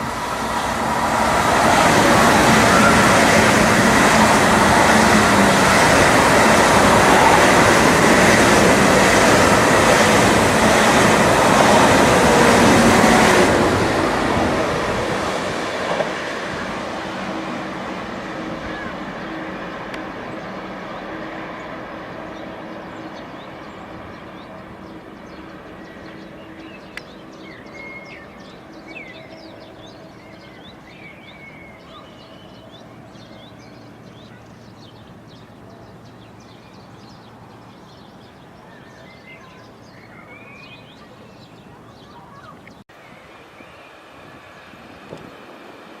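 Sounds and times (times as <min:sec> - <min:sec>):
train rumbling: 0:00.0 - 0:42.6
birds chirping: 0:00.0 - 0:45.4.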